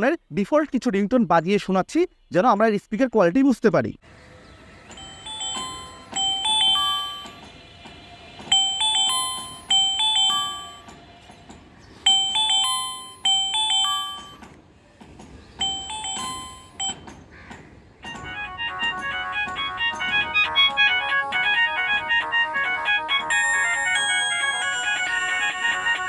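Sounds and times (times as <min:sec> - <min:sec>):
phone ringtone chime melody: 0:04.9 - 0:07.6, 0:08.4 - 0:11.0, 0:12.1 - 0:14.4, 0:15.6 - 0:17.1, 0:18.1 - 0:26.0.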